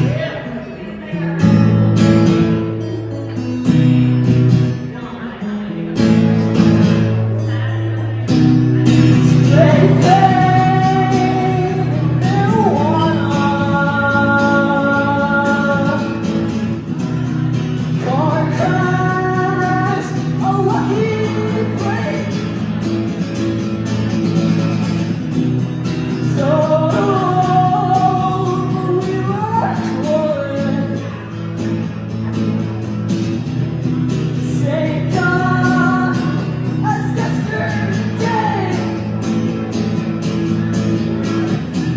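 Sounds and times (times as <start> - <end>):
guitar accompaniment: 0.0 - 41.9
person singing long notes: 9.1 - 16.2.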